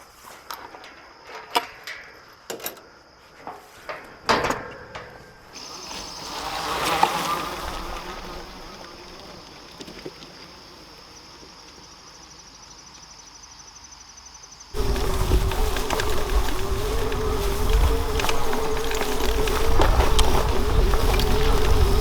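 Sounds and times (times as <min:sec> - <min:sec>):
insects trilling: 0:00.0 - 0:22.0
low wavering drone with rumble: 0:14.8 - 0:22.0.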